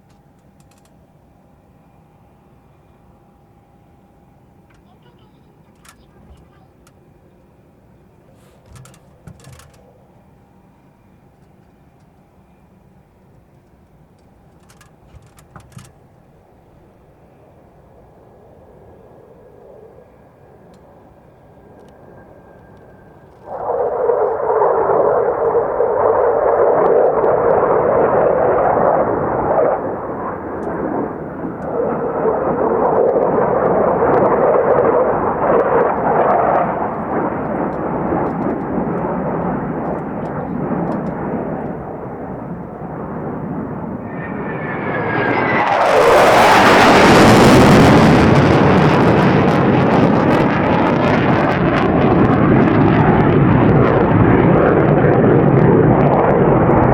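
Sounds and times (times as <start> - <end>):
jet engines roaring overhead: 0.0 - 56.9.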